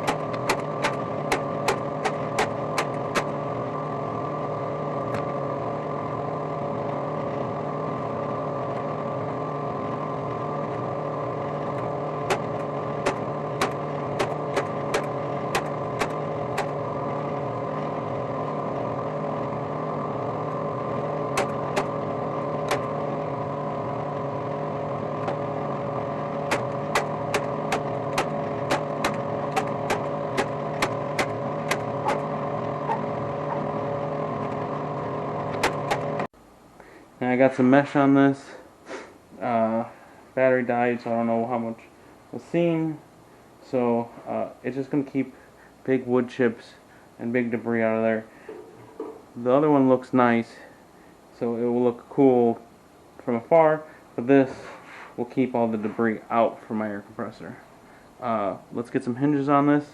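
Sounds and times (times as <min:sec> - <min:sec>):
stapler clicks: 0:00.0 - 0:03.3, 0:11.8 - 0:16.8, 0:21.4 - 0:22.0, 0:22.6 - 0:22.9, 0:26.5 - 0:32.2
steady machine hum: 0:00.0 - 0:59.9.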